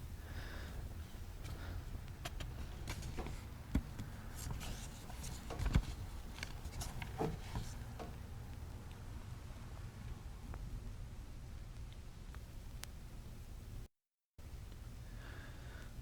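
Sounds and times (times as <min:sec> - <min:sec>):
low room hum: 0:00.0 - 0:16.0
small clicks and knocks: 0:01.4 - 0:08.2.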